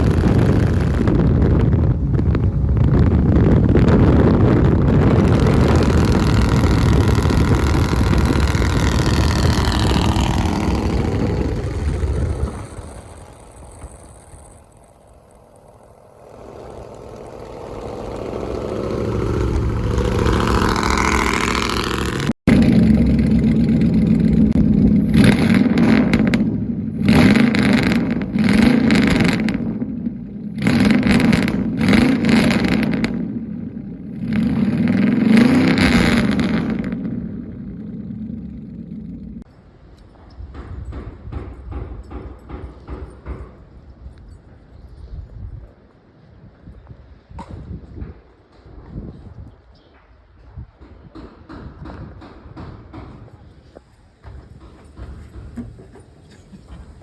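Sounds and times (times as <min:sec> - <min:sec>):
truck revving in surges: 0:00.0 - 0:39.5
truck with loud exhaust passing: 0:00.0 - 0:39.5
steady low drone: 0:00.0 - 0:39.9.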